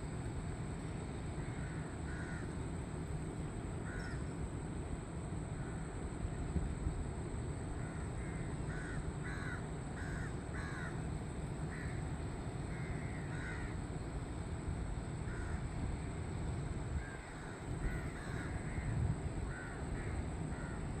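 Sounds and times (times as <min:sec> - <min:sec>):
crows cawing: 0:01.4 - 0:02.5, 0:03.8 - 0:04.2, 0:07.8 - 0:11.0, 0:11.7 - 0:12.0, 0:12.7 - 0:13.8, 0:15.3 - 0:15.7, 0:17.0 - 0:20.9.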